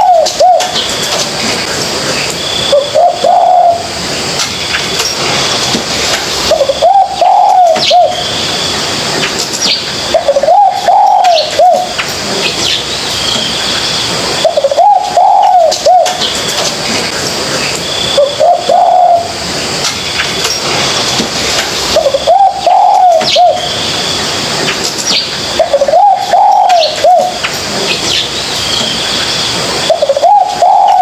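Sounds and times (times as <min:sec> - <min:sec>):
dove cooing: 0:00.0 - 0:00.9, 0:02.6 - 0:04.0, 0:06.4 - 0:08.3, 0:10.1 - 0:12.0, 0:14.4 - 0:16.4, 0:18.1 - 0:19.4, 0:21.9 - 0:23.8, 0:25.6 - 0:27.4, 0:29.8 - 0:31.0
steady hiss: 0:00.0 - 0:31.0.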